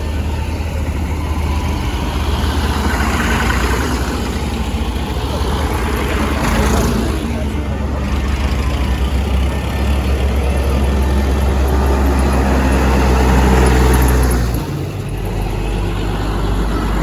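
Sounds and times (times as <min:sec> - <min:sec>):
tractor engines rumbling: 0:00.0 - 0:17.0.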